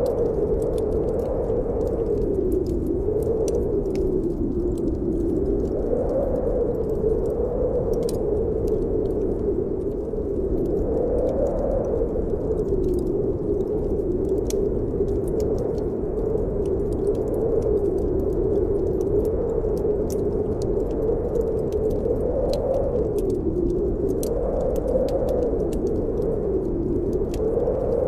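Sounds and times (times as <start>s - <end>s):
wind whistling: 0.0s - 28.0s
wood fire crackling: 0.0s - 28.0s.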